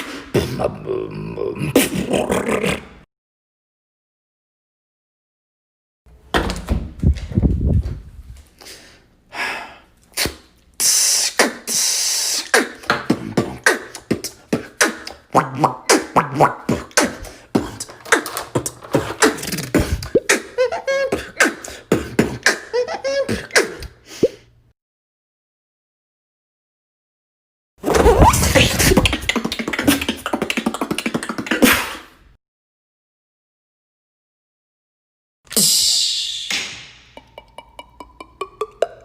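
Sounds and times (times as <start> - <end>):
beatboxing: 0.0 - 3.0, 10.1 - 24.3, 27.9 - 32.1, 35.6 - 39.0.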